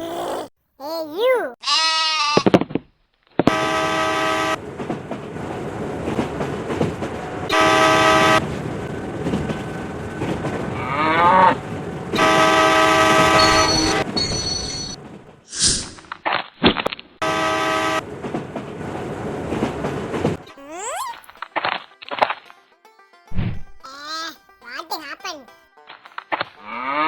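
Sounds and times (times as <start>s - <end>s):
horn blasts: 3.5s - 4.7s, 7.5s - 10.2s, 10.8s - 14.4s, 17.2s - 18.2s.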